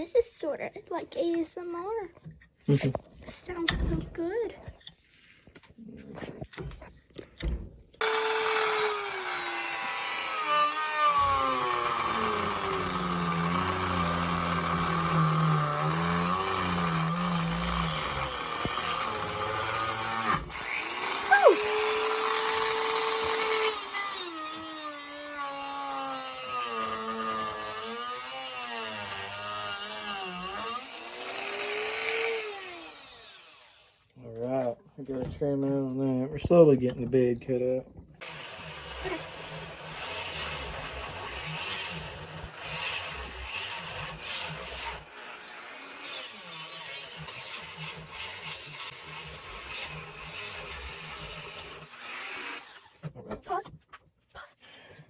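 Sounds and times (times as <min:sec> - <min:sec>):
rotary tool cutting wood: 0:08.0 - 0:34.0, 0:38.2 - 0:53.2.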